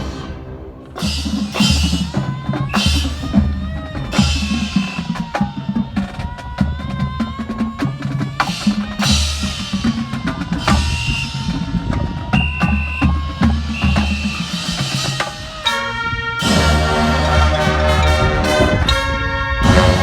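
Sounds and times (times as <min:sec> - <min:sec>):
cymbal crashes: 0:00.0 - 0:05.2
bass and snare drums: 0:00.0 - 0:20.0
wavering melody line: 0:10.6 - 0:20.0.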